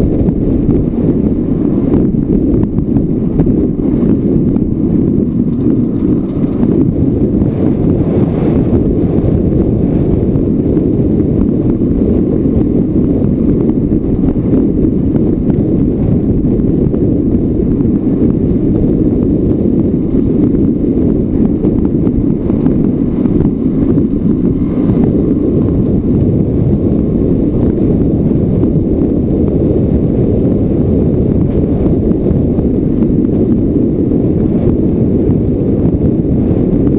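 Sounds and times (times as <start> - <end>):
wind rumble on microphone: 0.0 - 36.9
two-stroke motorcycle engine: 2.8 - 10.4.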